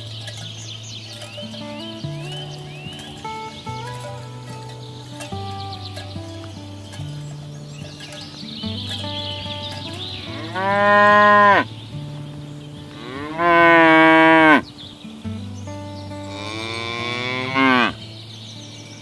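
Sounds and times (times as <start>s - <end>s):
cows mooing: 9.2s - 11.8s, 12.9s - 14.7s, 16.3s - 18.0s.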